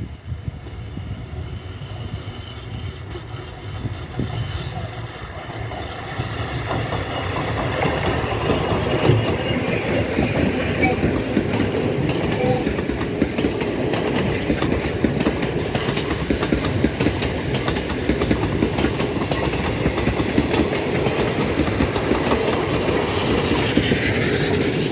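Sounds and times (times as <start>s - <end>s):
steam locomotive passing: 0.0s - 24.9s
train wheels clattering over rail joints: 3.1s - 24.9s.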